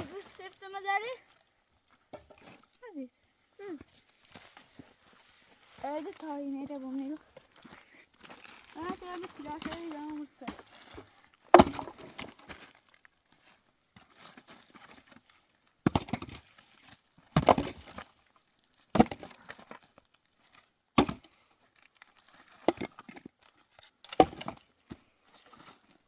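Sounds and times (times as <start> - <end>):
firewood cracking: 5.8 - 26.0.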